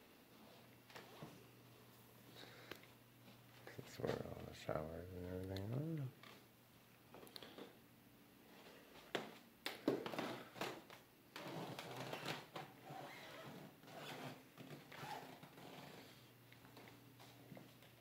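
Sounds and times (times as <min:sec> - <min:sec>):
rustling and scuffing: 0:00.2 - 0:02.4.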